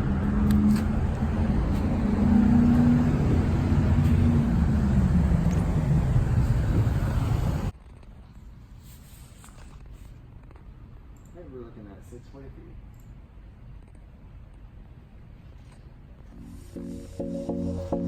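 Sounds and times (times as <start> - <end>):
car engine and road drone: 0.0 - 7.7.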